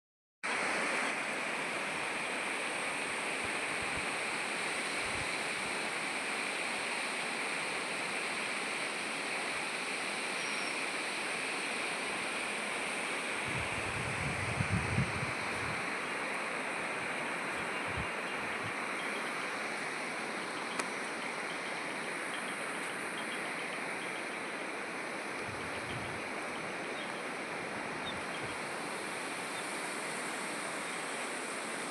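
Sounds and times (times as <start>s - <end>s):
wind buffeting microphone: 13.4s - 15.9s, 17.8s - 18.8s, 25.4s - 26.3s.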